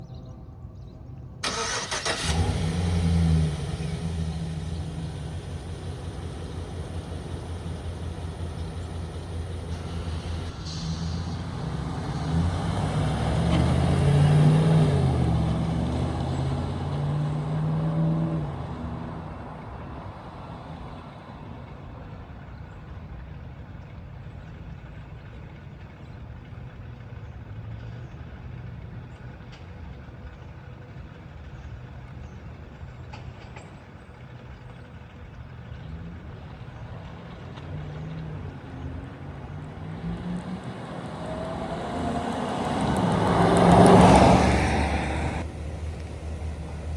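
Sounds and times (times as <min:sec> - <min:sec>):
pickup truck engine running: 0:01.4 - 0:17.1, 0:39.4 - 0:46.9.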